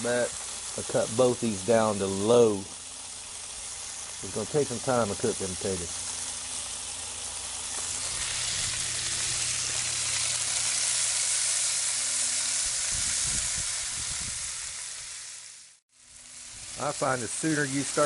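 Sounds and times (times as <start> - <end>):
potatoes sizzling in grease: 0.0 - 18.0.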